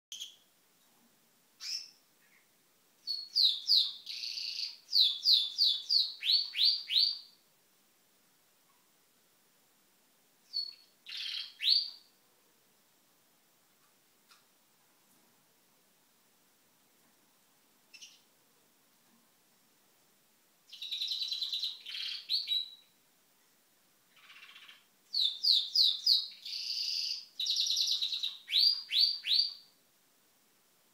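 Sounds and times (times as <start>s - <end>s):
bird high chirps: 0.1s - 0.5s, 1.6s - 7.4s, 10.5s - 12.1s, 17.9s - 18.3s, 20.7s - 23.0s, 24.1s - 29.7s.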